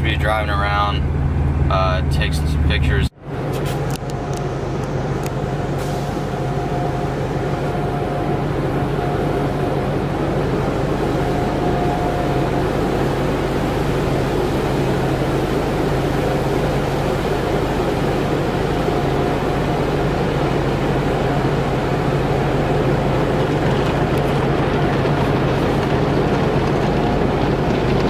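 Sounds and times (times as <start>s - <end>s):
car engine noise in cabin: 0.0s - 28.0s
low hum: 0.0s - 28.0s.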